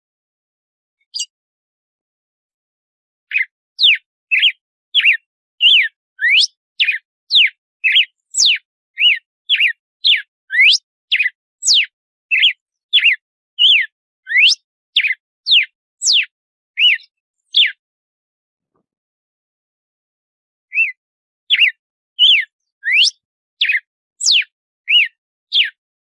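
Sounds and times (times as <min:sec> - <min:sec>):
bird whistling song: 0:01.0 - 0:01.4, 0:03.3 - 0:17.8, 0:20.7 - 0:25.8.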